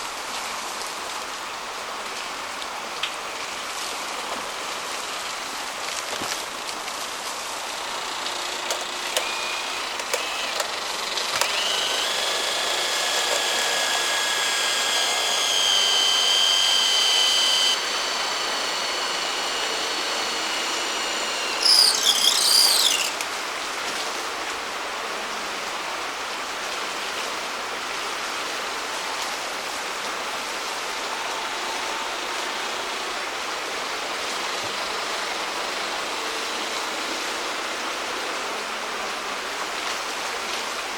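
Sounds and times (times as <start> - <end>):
high steady whine: 6.6 - 23.4.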